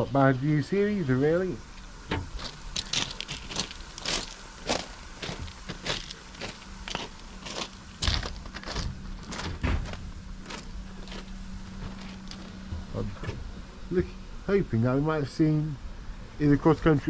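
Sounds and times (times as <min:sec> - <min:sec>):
footsteps crunching on gravel: 0:02.2 - 0:13.6.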